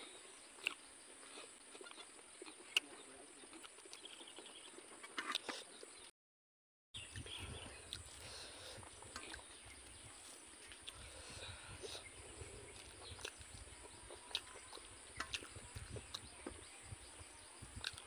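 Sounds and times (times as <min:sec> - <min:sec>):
chewing and wet mouth clicks: 0:00.6 - 0:00.8, 0:01.7 - 0:05.6, 0:07.1 - 0:08.3, 0:10.2 - 0:11.1, 0:12.7 - 0:16.3, 0:17.8 - 0:18.0.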